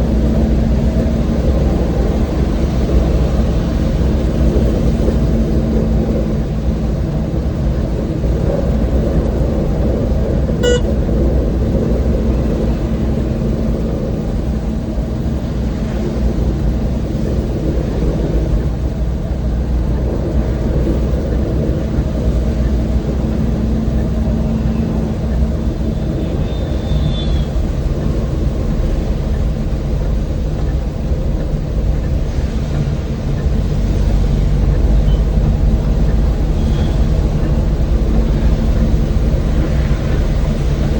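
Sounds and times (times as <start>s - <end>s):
road rumble: 0.0s - 40.9s
van engine running: 0.0s - 40.9s
vehicle horn toot: 10.6s - 10.9s.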